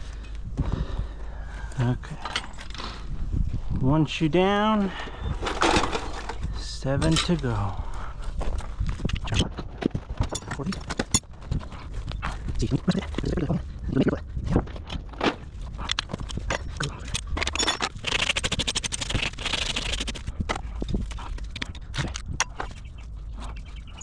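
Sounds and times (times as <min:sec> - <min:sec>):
tools tapping on hoof: 0:20.2 - 0:24.0.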